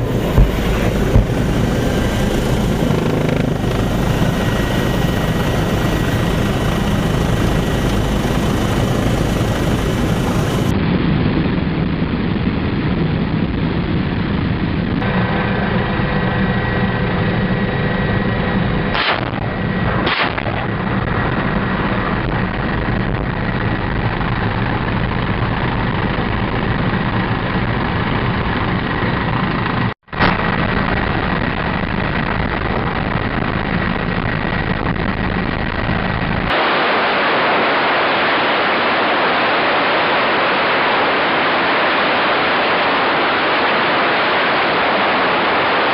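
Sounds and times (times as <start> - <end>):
thin steady whine: 0.0 - 10.8
helicopter rotor and turbine engine: 0.0 - 45.9
sharp cracks: 19.0 - 20.7.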